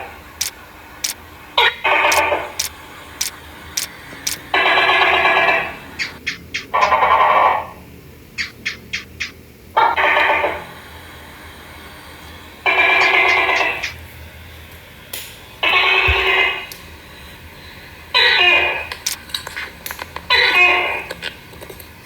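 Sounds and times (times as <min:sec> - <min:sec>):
sharp electronic clicks: 0:00.4 - 0:01.2, 0:02.1 - 0:04.4.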